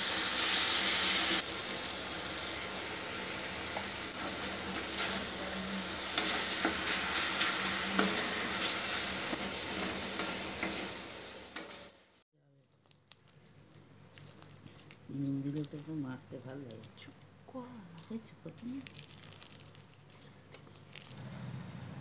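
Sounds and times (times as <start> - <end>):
paste sizzling in hot oil: 0.0 - 12.2
metal spatula scraping a pan: 4.1 - 11.9.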